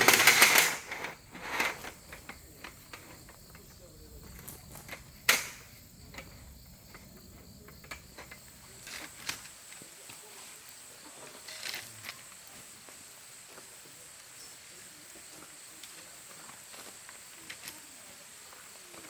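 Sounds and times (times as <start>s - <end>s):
crickets trilling: 0.0s - 19.0s.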